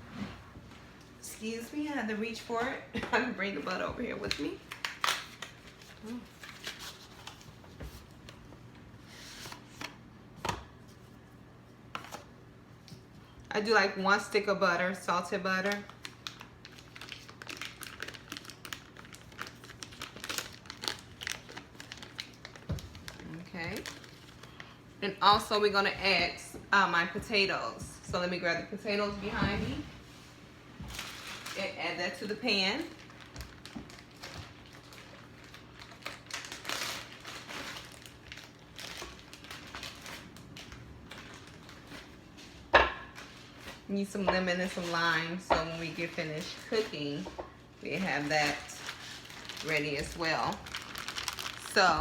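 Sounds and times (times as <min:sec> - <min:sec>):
butter wrapper crinkling: 0:04.3 - 0:07.6, 0:15.6 - 0:24.8, 0:32.8 - 0:42.2, 0:48.2 - 0:51.8.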